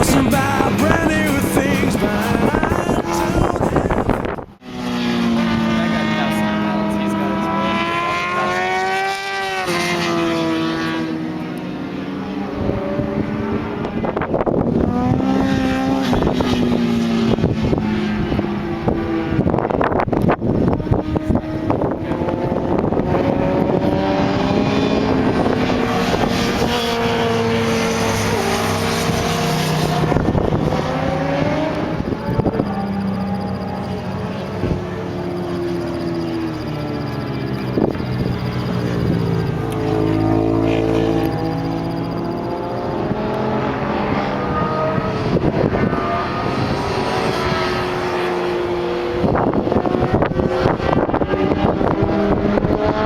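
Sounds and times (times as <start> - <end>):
motorcycle engine running: 0.0 - 4.5, 25.0 - 44.5
motorcycle engine running hard: 0.0 - 4.6, 5.2 - 53.0
wind noise: 0.0 - 4.6, 12.6 - 53.0.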